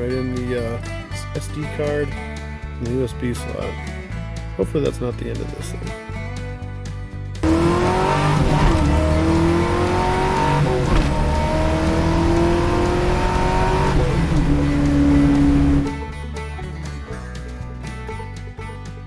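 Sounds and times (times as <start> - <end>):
truck engine accelerating: 7.4 - 16.0.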